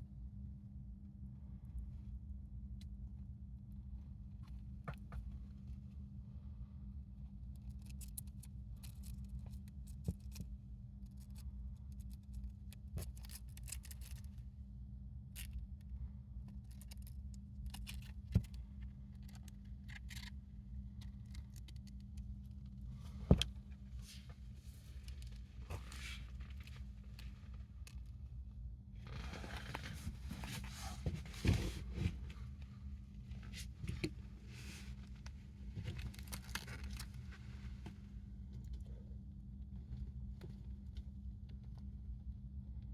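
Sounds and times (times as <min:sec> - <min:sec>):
steady low hum: 0:00.0 - 0:42.9
hamster crunching leaf: 0:11.2 - 0:14.3, 0:16.6 - 0:20.4.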